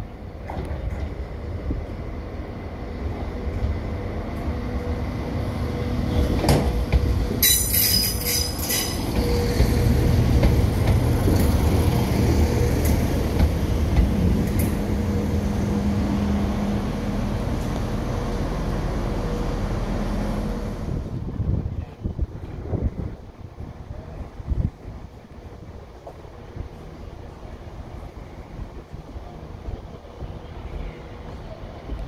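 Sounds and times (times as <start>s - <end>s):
diesel train rumbling: 0.0s - 32.0s
high-pitched metallic squeal: 7.4s - 9.8s.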